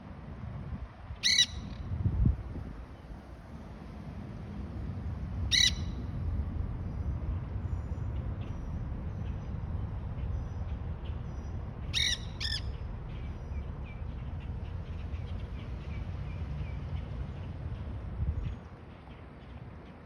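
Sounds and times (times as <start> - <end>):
parrots chirping: 1.2 - 1.7, 5.5 - 6.0, 11.9 - 12.8
parrot squawks: 1.2 - 1.8, 5.5 - 6.0, 11.9 - 12.7.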